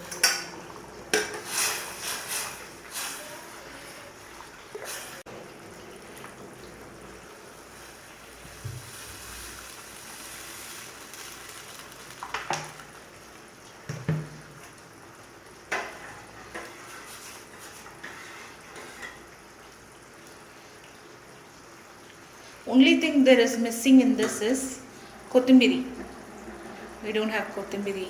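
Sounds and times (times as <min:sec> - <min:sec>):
metal utensil clinking on pot: 0:00.0 - 0:00.5
pot hissing on stove: 0:01.1 - 0:13.4, 0:15.7 - 0:28.0.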